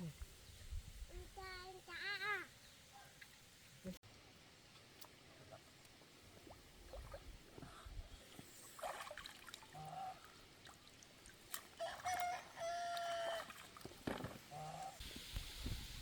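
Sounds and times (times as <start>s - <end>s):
rooster crowing: 11.8s - 13.5s.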